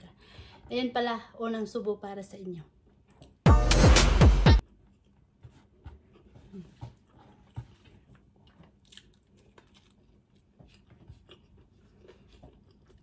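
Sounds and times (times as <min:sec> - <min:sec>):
person chewing food: 0:02.9 - 0:03.5, 0:04.6 - 0:13.0.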